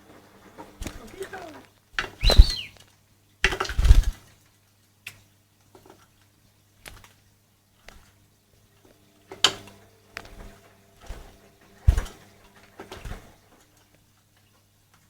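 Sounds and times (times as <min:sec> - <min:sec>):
bird splashing in water: 0:00.6 - 0:02.8.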